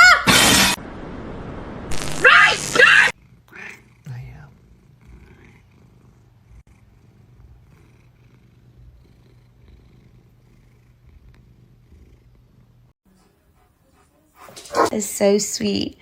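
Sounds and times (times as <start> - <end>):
cat purring: 3.2 - 13.0.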